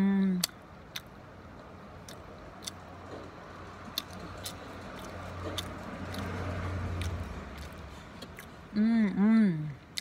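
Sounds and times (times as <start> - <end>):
low vehicle rumble: 0.0 - 10.0
wet mouth clicks: 0.3 - 1.1
person chewing: 0.3 - 10.0.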